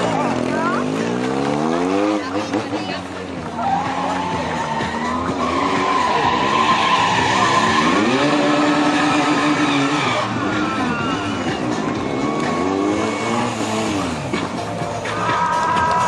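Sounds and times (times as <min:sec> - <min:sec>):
motorcycle engine revving: 0:00.0 - 0:16.0
tyres squealing on pavement: 0:00.0 - 0:16.0.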